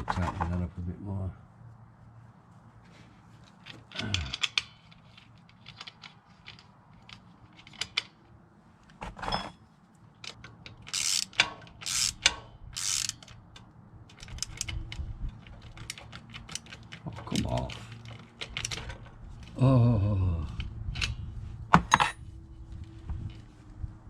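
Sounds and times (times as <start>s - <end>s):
hand tools clicking and knocking: 3.5s - 8.2s, 10.2s - 19.6s
ratchet tightening: 10.2s - 19.0s.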